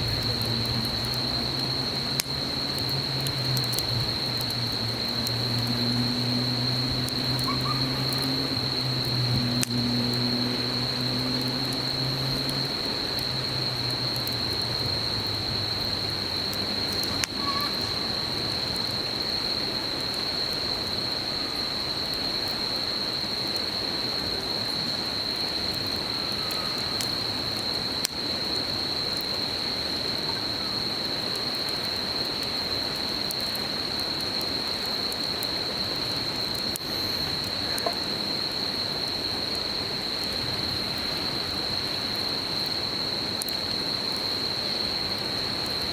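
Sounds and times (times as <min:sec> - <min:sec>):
low engine-like hum: 0:00.0 - 0:15.8
campfire crackling and popping: 0:00.0 - 0:45.9
high-pitched insect trill: 0:00.0 - 0:45.9.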